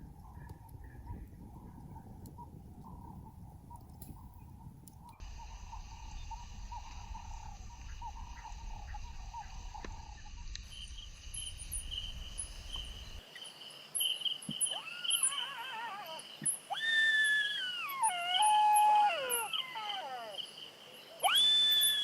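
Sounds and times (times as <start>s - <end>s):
insects chirring: 5.1s - 22.0s
animal wailing howl: 14.7s - 20.4s, 21.2s - 22.0s.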